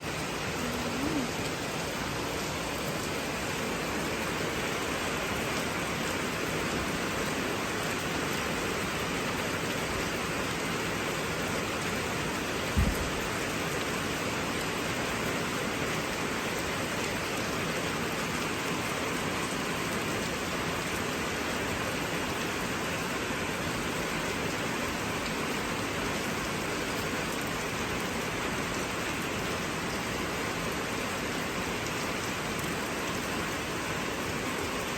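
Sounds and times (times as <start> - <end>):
heavy rain falling: 0.0 - 34.9
short low thump: 12.8 - 13.2.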